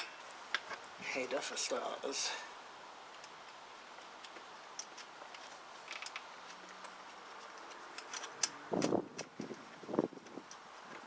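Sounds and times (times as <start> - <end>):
small metallic clicks and taps: 3.1 - 9.6.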